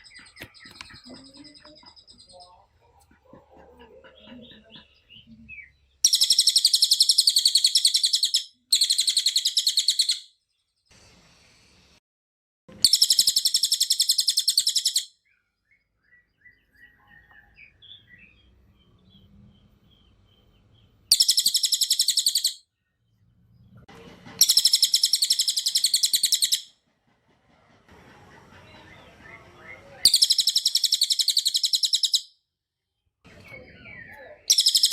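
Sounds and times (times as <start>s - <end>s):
bird high-pitched rapid trilling: 6.0s - 10.3s, 12.8s - 15.1s, 21.1s - 22.6s, 24.4s - 26.7s, 30.0s - 32.3s, 33.4s - 34.9s.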